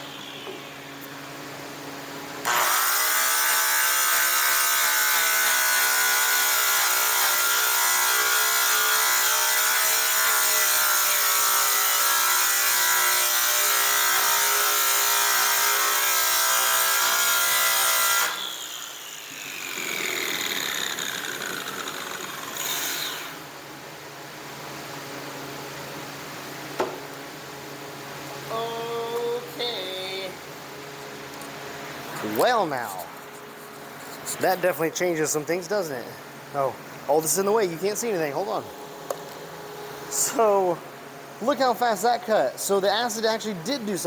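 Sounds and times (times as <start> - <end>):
electric polisher buffing metal: 2.5 - 23.4.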